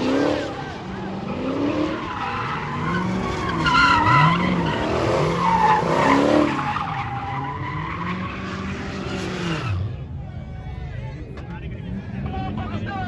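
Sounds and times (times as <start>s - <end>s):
car engine revving: 0.0s - 9.9s
tires squealing: 0.0s - 10.0s.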